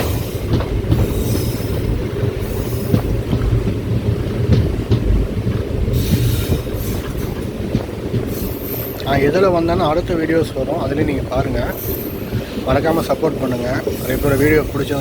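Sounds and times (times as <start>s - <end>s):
hiss: 0.0s - 3.2s, 5.9s - 7.5s, 8.2s - 9.0s, 11.6s - 15.0s
train coaches rumbling on track: 0.0s - 15.0s
train wheel clicks: 0.0s - 15.0s.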